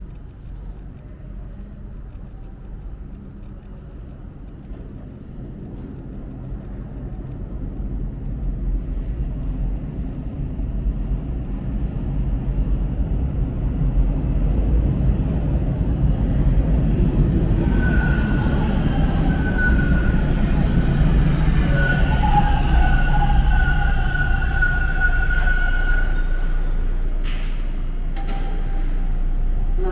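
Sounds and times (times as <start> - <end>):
subway train rumble: 0.0 - 29.9
high tone of braking train: 16.9 - 29.9.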